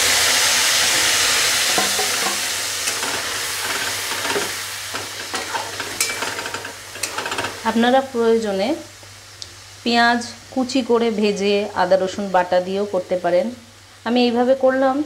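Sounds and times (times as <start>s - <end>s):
paste sizzling in hot oil: 0.0s - 14.2s
metal spatula clicking against pan: 5.3s - 7.5s.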